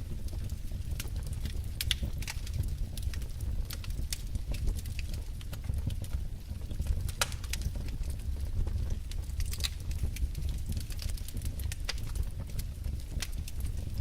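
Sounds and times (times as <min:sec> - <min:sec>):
rumble of burning logs: 0:00.0 - 0:14.0
wood fire crackling: 0:00.0 - 0:14.0
sharp pops and snaps: 0:06.8 - 0:08.2, 0:09.2 - 0:12.2.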